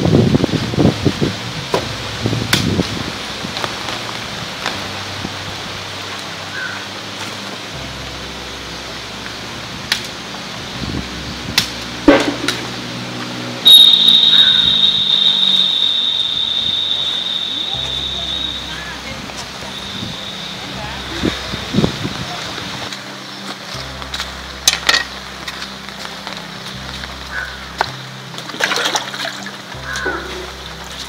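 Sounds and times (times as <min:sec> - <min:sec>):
steady background hiss: 0:00.0 - 0:28.6
high-pitched buzz: 0:13.6 - 0:21.0.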